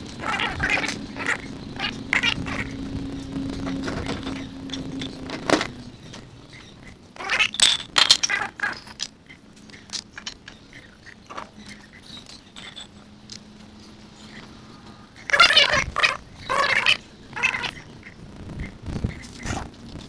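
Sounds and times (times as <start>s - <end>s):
low steady hum: 0.0s - 20.0s
metal items clinking and scraping: 3.6s - 13.5s.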